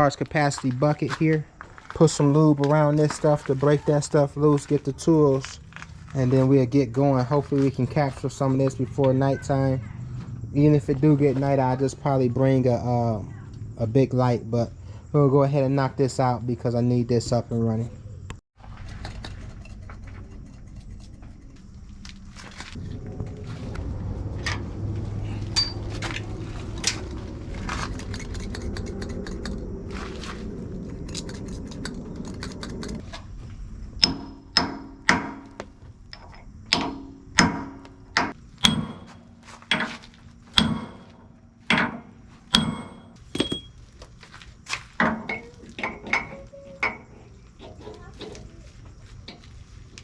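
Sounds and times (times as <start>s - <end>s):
steady low rumble: 17.5s - 43.3s
hammer striking metal: 25.6s - 25.8s, 34.0s - 43.7s.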